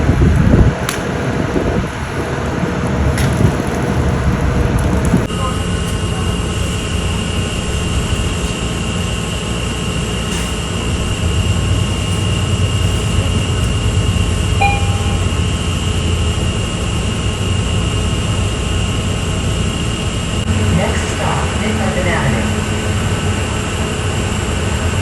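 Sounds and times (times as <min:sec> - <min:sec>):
subway train rumble: 0:00.0 - 0:25.0
high-pitched whine: 0:05.2 - 0:25.0.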